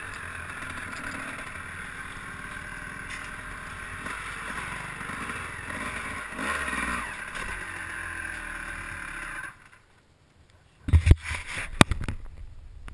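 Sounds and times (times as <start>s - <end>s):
vehicle motor running: 0.0s - 9.7s.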